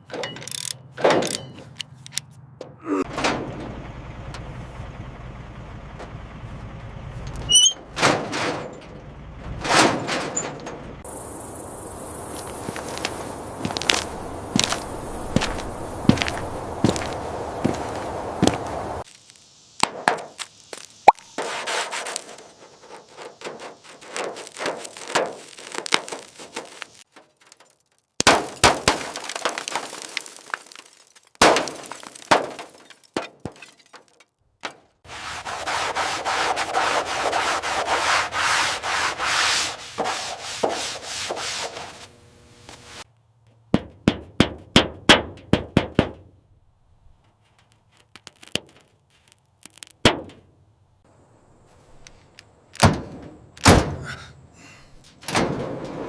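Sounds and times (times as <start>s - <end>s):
tool knocks and clicks: 0.0s - 2.8s
steady rubbing or scraping: 35.0s - 43.1s.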